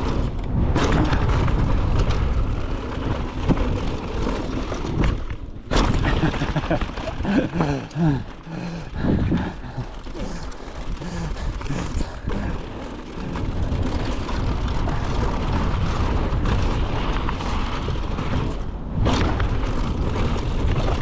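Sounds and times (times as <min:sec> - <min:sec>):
bike jolt: 0:00.0 - 0:21.0
tyre rumble on dirt trail: 0:00.0 - 0:21.0
wind on camera microphone: 0:08.8 - 0:12.6.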